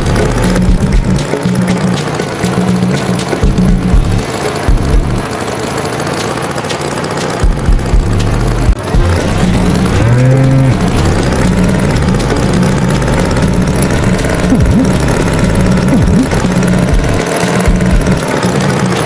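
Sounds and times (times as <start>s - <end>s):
tractor engine rumble: 0.0s - 19.0s
cartoon bull mooing: 9.0s - 11.6s.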